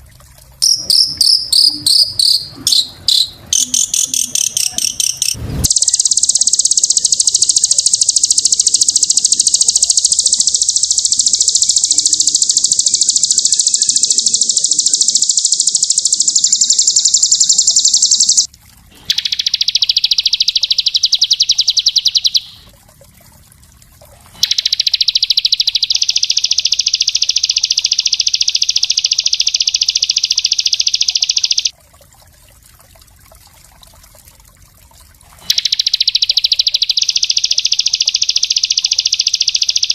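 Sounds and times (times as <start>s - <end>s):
songbird singing high trills: 0.6s - 18.5s, 19.1s - 22.6s, 35.5s - 39.9s.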